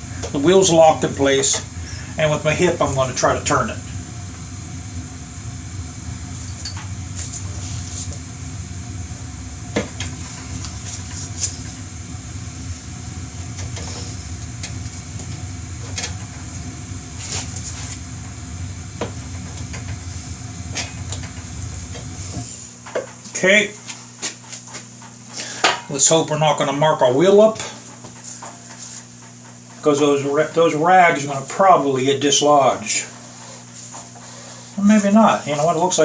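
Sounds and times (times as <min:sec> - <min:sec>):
low hum: 0:00.0 - 0:22.9.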